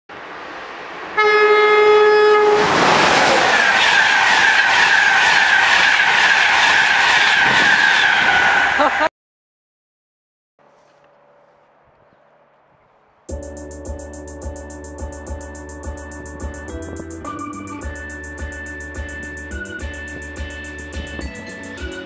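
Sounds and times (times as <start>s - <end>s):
train passing with rushing noise: 0.1s - 9.1s, 13.3s - 22.0s
train horn: 1.2s - 2.8s, 3.4s - 8.9s
wavering high whine: 13.4s - 22.0s.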